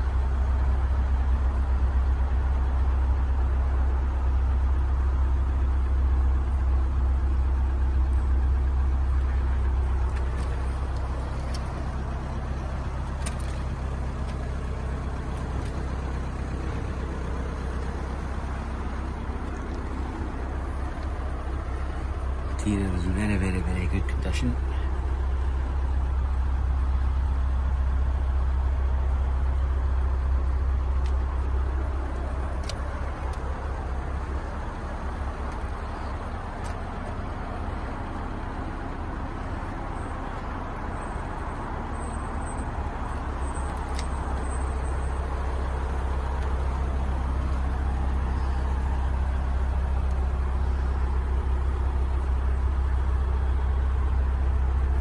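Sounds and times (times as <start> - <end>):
vehicle engine idling: 0.0 - 55.0
faint clicks: 43.7 - 44.5.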